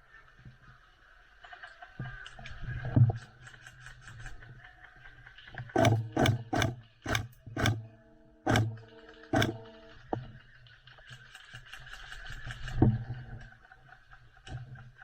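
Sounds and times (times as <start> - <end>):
airsoft gun shots: 5.8 - 7.9, 8.5 - 8.8, 9.4 - 9.7.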